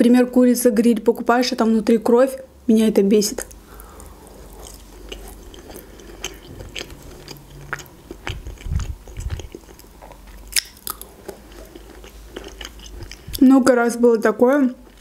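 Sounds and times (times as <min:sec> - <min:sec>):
chewing food: 0:03.4 - 0:13.4.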